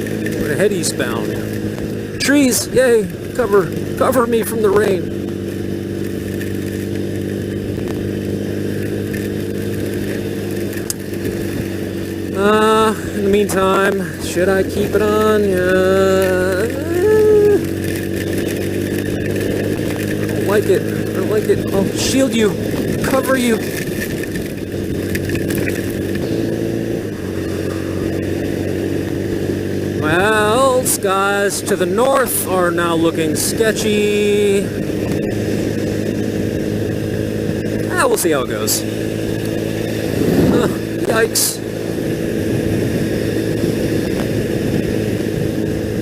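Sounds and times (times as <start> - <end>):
motorcycle engine cruising: 0.0 - 46.0
wind rushing: 41.7 - 46.0.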